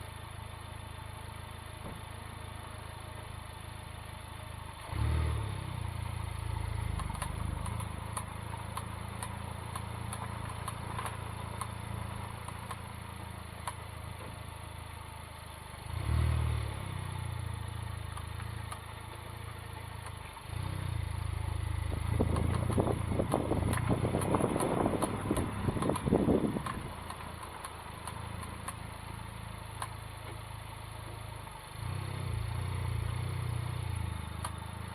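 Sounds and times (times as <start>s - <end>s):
car engine running at low speed: 0.0s - 34.9s
sharp clicks from car wheel: 6.7s - 14.4s, 18.0s - 20.5s, 21.8s - 31.3s, 34.0s - 34.8s.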